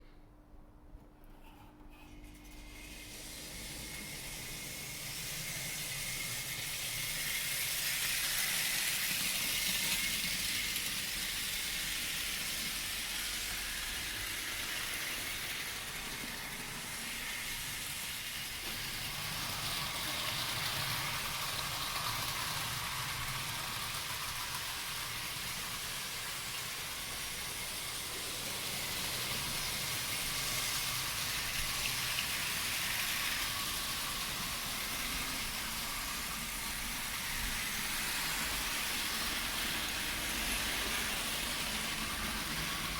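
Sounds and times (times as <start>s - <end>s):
model train rattling on track: 2.6s - 42.9s.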